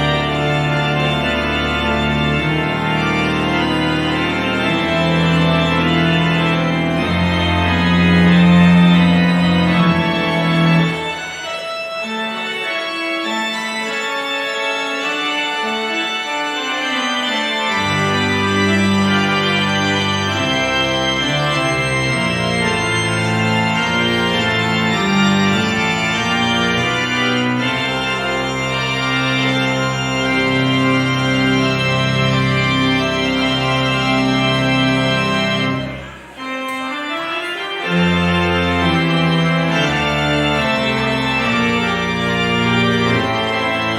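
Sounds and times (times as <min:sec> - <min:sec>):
church organ playing chords: 0:00.0 - 0:43.9.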